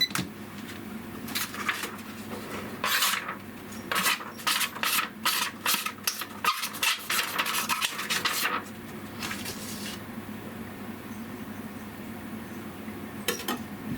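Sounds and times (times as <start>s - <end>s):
knife scraping on whetstone: 2.8s - 3.2s, 3.9s - 8.3s.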